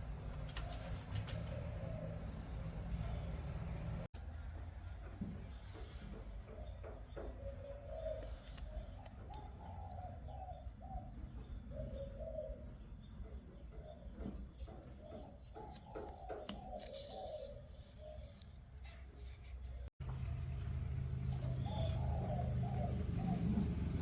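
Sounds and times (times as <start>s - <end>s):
bird calling: 5.7s - 24.0s
steady low hum: 18.8s - 24.0s.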